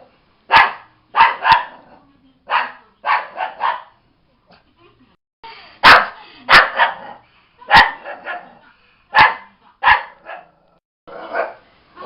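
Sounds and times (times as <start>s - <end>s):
dog barking: 0.5s - 1.9s, 2.5s - 4.0s, 5.8s - 10.6s, 11.2s - 11.6s.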